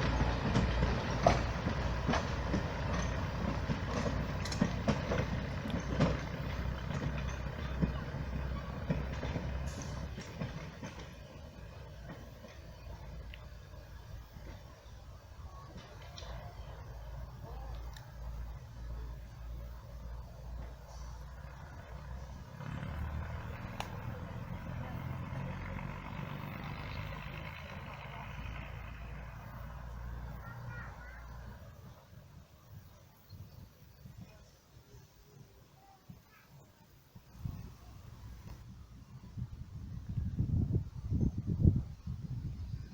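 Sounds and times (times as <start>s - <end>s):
train rumbling: 0.0s - 33.0s, 37.2s - 42.9s
sharp clicks: 23.7s - 24.1s.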